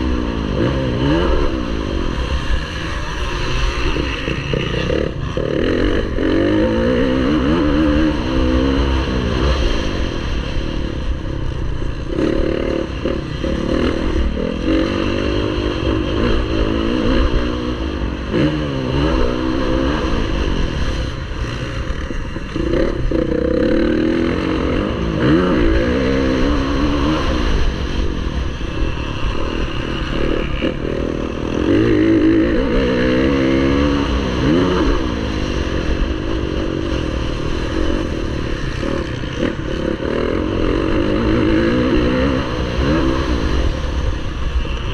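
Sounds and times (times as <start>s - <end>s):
motocross bike engine: 0.0s - 44.9s.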